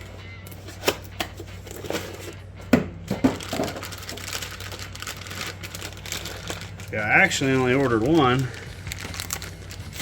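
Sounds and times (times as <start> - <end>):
packaging crinkling and rustling: 3.2 - 10.0.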